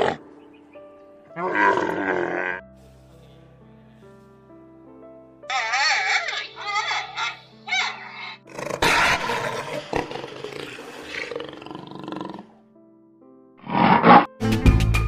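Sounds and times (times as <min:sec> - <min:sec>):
big cat roaring: 0:00.0 - 0:00.2, 0:01.4 - 0:02.6, 0:07.9 - 0:12.5, 0:13.6 - 0:14.3
background music: 0:00.0 - 0:15.0.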